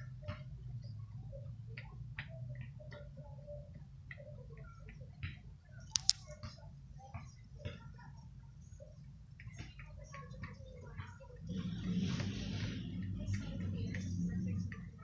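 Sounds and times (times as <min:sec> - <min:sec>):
sharp clicks: 0:05.8 - 0:06.3
bird pecking at seeds: 0:05.9 - 0:06.2.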